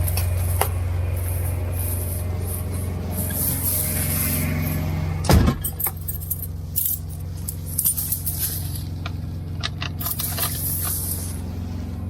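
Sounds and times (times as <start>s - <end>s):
diesel engine running: 0.0s - 12.0s
light clinks and rattles: 5.5s - 11.3s.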